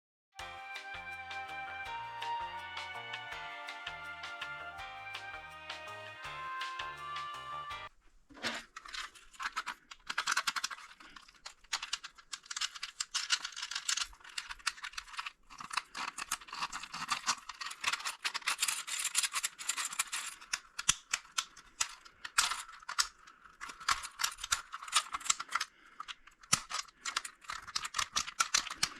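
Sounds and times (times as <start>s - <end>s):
fidget toy clicks and rattles: 8.8s - 28.9s.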